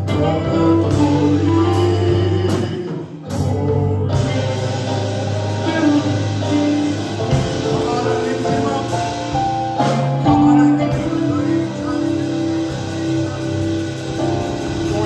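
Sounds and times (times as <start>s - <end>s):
people singing: 0.0s - 9.4s
bass: 0.0s - 15.0s
gospel band playing: 0.0s - 15.0s.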